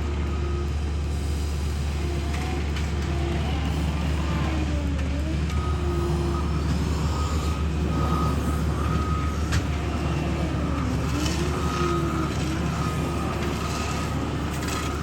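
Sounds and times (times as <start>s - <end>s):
diesel paving machine rumbling: 0.0s - 15.0s
backup alarm beeping: 5.5s - 15.0s.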